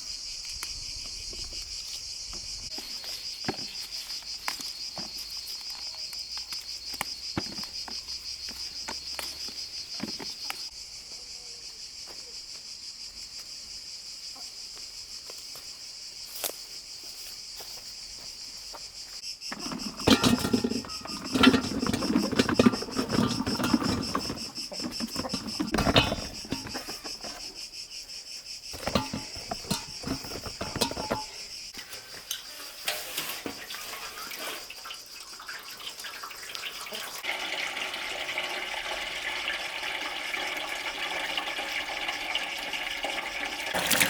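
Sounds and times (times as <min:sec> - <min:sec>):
crickets chirring: 0:00.0 - 0:44.0
knocks and rustling: 0:19.5 - 0:27.8, 0:28.7 - 0:32.2.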